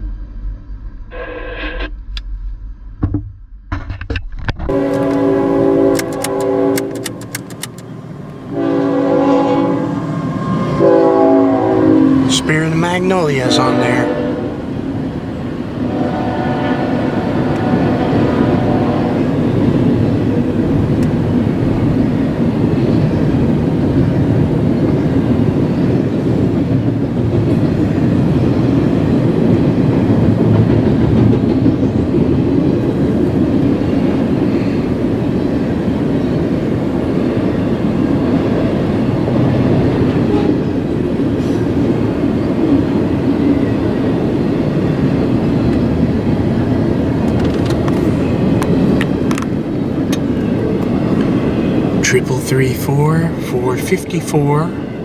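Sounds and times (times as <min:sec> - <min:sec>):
train wheels rumbling on rail: 0:04.6 - 0:55.0
train horn: 0:04.7 - 0:14.8, 0:15.7 - 0:20.2, 0:40.1 - 0:40.9.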